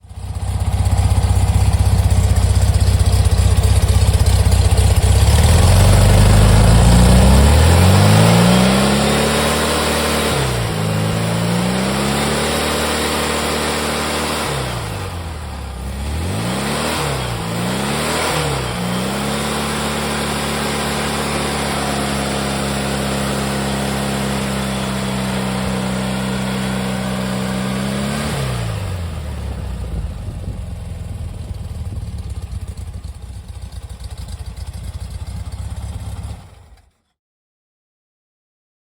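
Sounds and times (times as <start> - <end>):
car engine revving and idling: 0.1 - 36.9.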